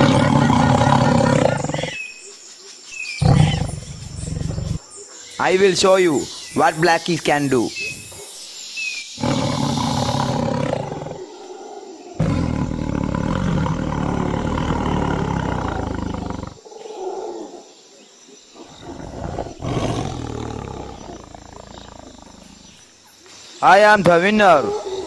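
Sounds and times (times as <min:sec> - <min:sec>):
big cat roaring: 0:00.0 - 0:02.1, 0:03.2 - 0:04.8, 0:09.2 - 0:17.6, 0:18.6 - 0:22.8.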